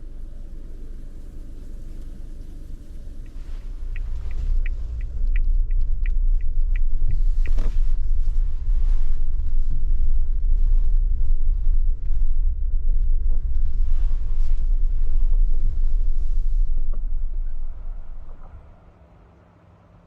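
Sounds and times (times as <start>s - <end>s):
car driving rumble: 0.0s - 20.0s
quick regular ticks: 3.1s - 8.2s.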